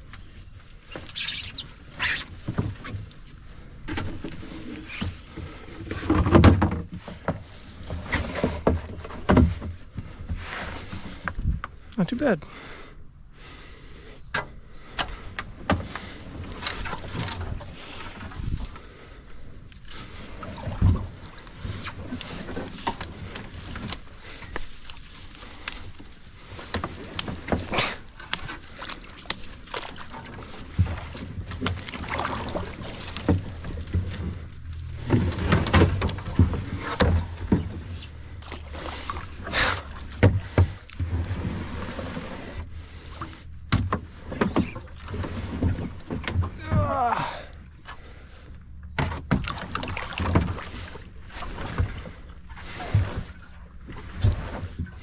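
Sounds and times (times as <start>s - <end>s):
paddle splashing in water: 0.0s - 11.5s, 15.0s - 55.0s
sharp knocks and clunks: 5.9s - 10.4s, 43.7s - 47.0s, 48.9s - 50.6s.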